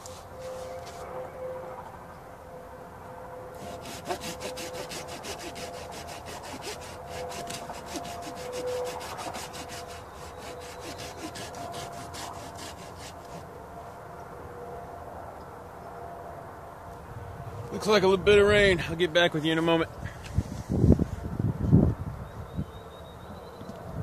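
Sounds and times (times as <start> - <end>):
hand saw cutting wood: 3.6 - 13.5.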